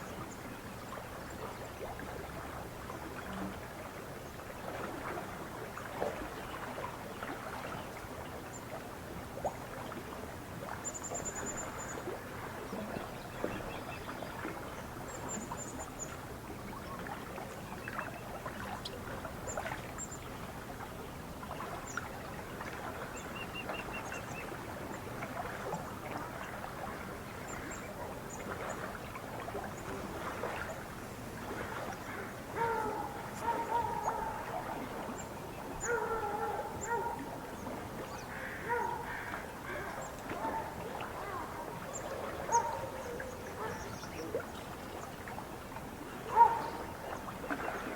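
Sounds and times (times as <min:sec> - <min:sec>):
lake water lapping at shore: 0:00.0 - 0:47.9
small water splashes: 0:00.0 - 0:47.9
waterfowl honking: 0:32.1 - 0:34.9, 0:35.8 - 0:37.2, 0:38.3 - 0:40.7, 0:42.2 - 0:42.9.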